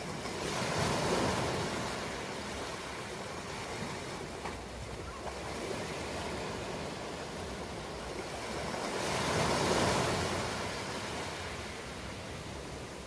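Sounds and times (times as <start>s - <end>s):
ocean surf washing ashore: 0.0s - 13.0s.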